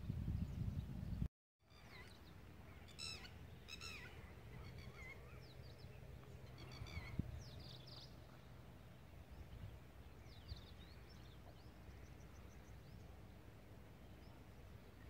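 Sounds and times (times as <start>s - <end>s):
rich bird calls: 1.7s - 8.4s
birds chirping and whistling: 2.9s - 5.8s.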